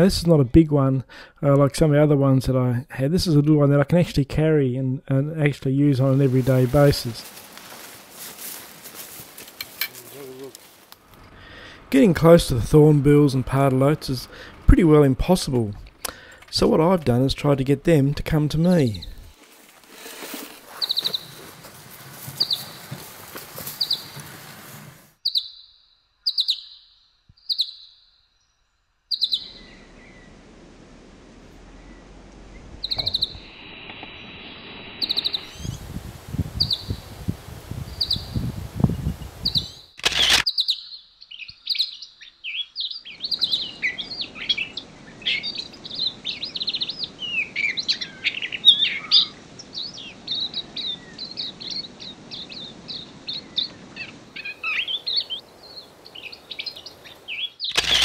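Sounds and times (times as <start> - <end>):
birds twittering: 5.8 - 19.4, 20.7 - 24.3, 25.2 - 37.2, 37.8 - 58.0
small songbirds chirping: 20.8 - 24.2, 25.2 - 58.0
sharp click: 40.0 - 40.5, 57.7 - 58.0.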